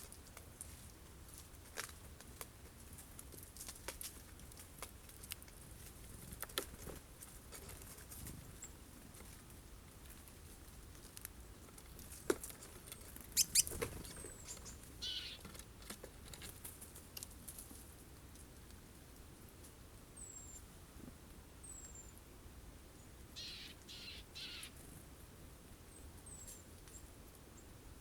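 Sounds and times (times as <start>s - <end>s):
birds pecking and landing taps: 0.0s - 5.6s, 6.2s - 8.4s, 10.9s - 17.8s
high falling bird chirp: 13.4s - 15.4s, 23.4s - 24.8s.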